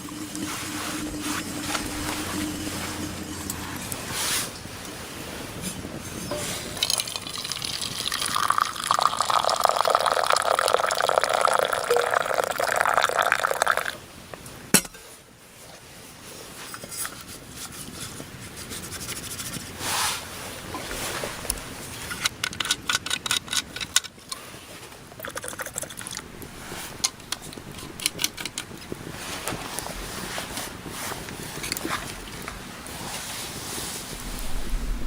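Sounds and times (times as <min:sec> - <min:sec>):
liquid pouring into container: 0:00.0 - 0:04.1, 0:06.8 - 0:14.0.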